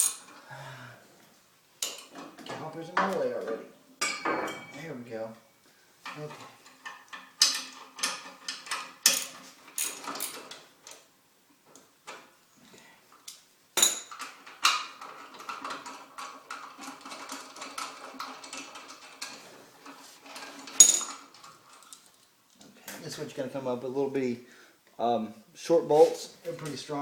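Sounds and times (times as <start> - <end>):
hand tools clinking on metal bolts: 0.0 - 0.4, 1.8 - 3.2, 6.0 - 10.6, 13.8 - 22.2.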